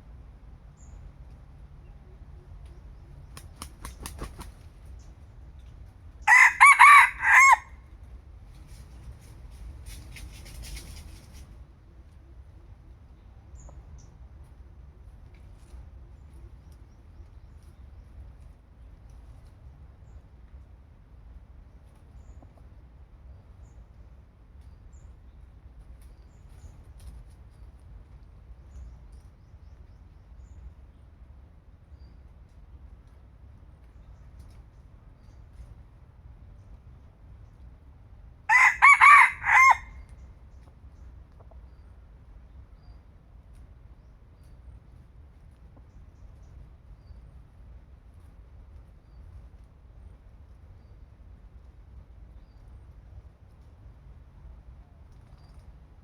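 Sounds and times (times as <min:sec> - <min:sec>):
rooster crowing: 0:06.3 - 0:07.8, 0:38.5 - 0:40.0.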